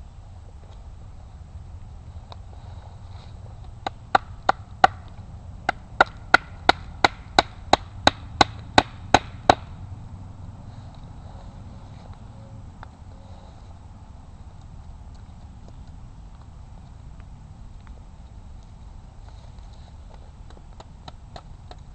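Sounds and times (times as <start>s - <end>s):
blade chopping wood: 5.7s - 9.7s.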